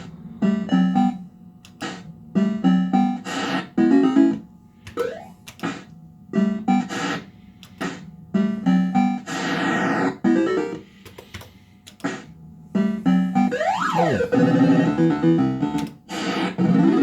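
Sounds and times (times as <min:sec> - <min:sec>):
sliding electronic sweep: 0:13.4 - 0:15.4.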